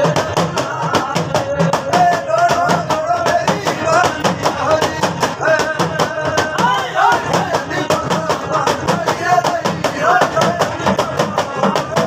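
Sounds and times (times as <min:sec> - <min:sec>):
fast sharp percussion: 0:00.0 - 0:12.0.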